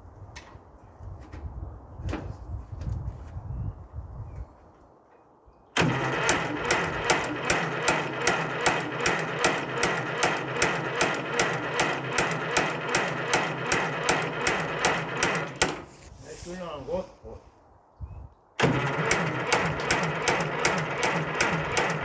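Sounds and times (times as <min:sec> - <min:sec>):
engine starter cranking: 0:05.8 - 0:16.1, 0:18.6 - 0:22.0.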